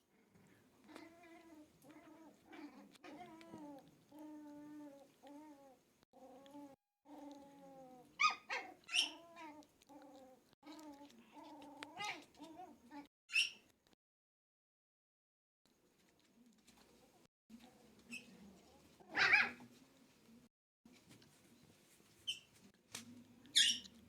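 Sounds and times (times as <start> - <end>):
dogs grumbling moans: 0.8 - 13.1
dog yelps: 8.2 - 9.6, 19.1 - 19.6.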